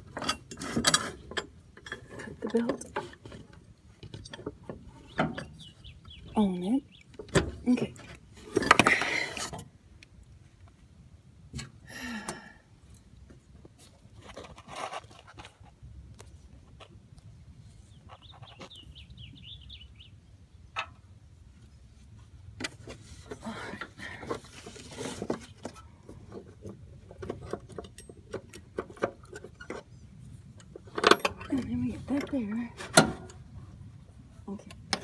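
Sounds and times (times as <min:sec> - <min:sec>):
clicks and rattles of metal parts: 0:00.0 - 0:06.2, 0:07.0 - 0:09.7, 0:22.6 - 0:33.5.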